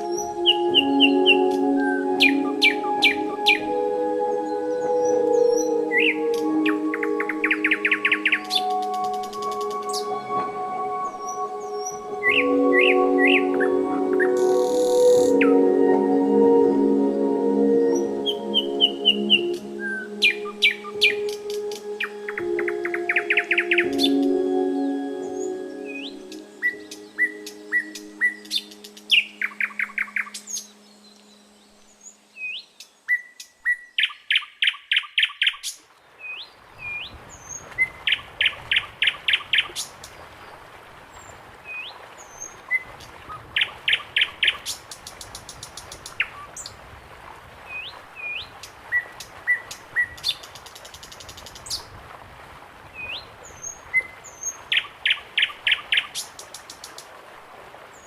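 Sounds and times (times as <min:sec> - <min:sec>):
bird singing repeated phrase: 0:00.0 - 0:03.8, 0:04.4 - 0:15.7, 0:17.8 - 0:31.5.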